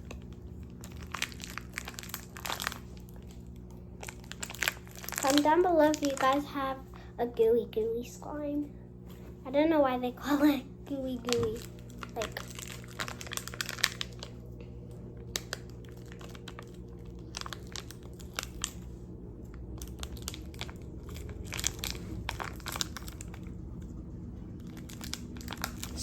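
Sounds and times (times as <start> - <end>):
slime squishing: 0.0 - 6.7
low background hum: 0.0 - 26.0.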